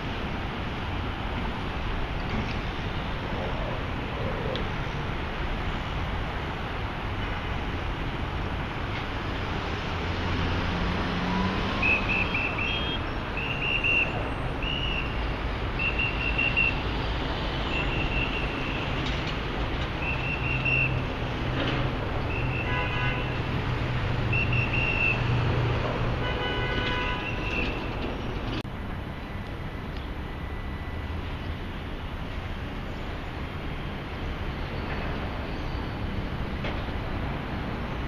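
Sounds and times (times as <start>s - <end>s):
street traffic: 0.0s - 38.0s
car horn: 11.8s - 15.1s, 22.3s - 23.5s, 26.2s - 27.9s.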